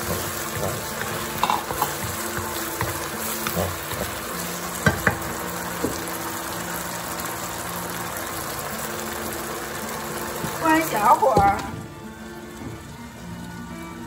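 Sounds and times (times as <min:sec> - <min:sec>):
wooden spatula stirring: 0:00.0 - 0:06.0
meat sizzling in a wok: 0:00.0 - 0:14.0.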